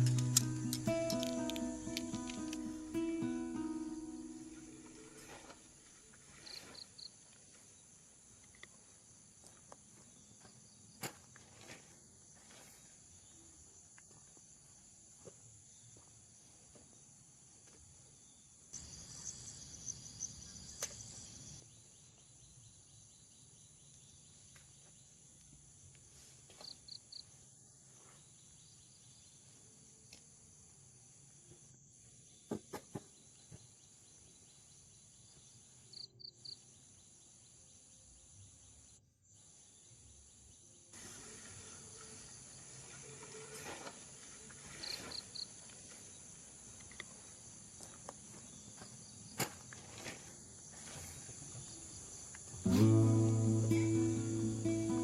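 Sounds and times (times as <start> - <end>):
insects buzzing: 0.0 - 10.9, 39.3 - 55.0.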